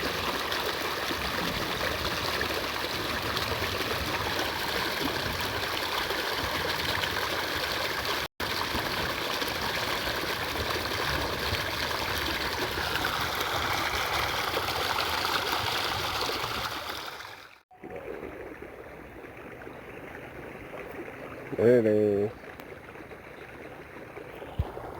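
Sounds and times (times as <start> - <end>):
stream water rushing: 11.6 - 18.7.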